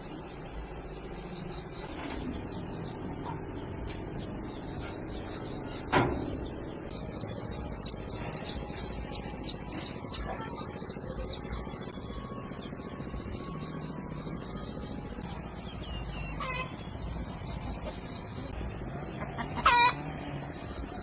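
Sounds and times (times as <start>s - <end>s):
insect trilling: 6.9s - 21.0s.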